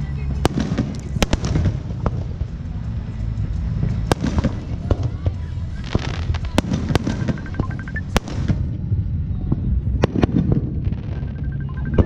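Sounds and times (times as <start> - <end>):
low rumble of fireworks bursts: 0.0 - 12.0
fireworks cracking: 0.3 - 8.7.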